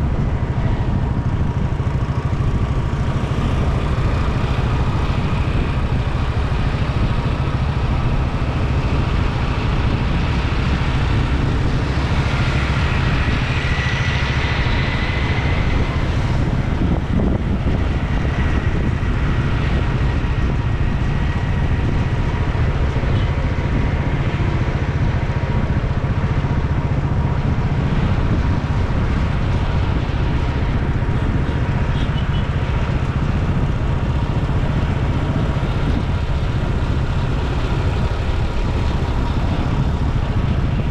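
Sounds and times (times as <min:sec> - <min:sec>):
road traffic: 0:00.0 - 0:40.9
wind buffeting microphone: 0:00.0 - 0:40.9.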